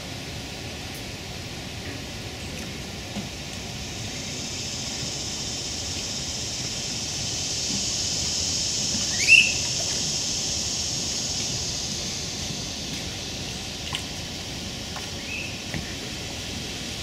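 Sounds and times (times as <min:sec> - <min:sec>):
steady high hiss: 0:00.0 - 0:17.0
bird squeal: 0:09.1 - 0:09.8.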